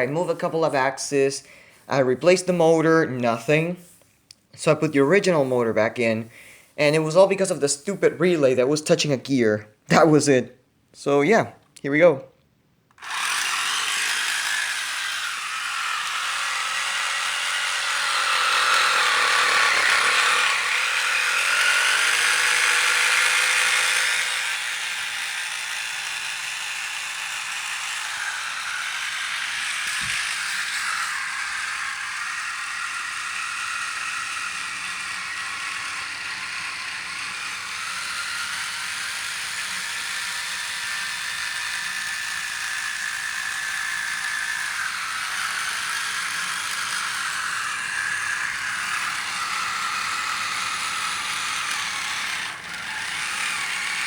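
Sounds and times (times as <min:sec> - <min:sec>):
small electric motor whirring: 0:12.9 - 0:54.0
plastic gears rattling: 0:13.0 - 0:54.0.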